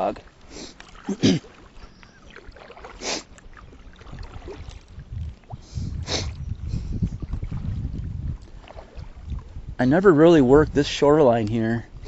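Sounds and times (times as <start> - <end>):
nasal sniffs: 3.0 - 3.3, 5.7 - 6.4
low rumbling on microphone: 3.6 - 11.0.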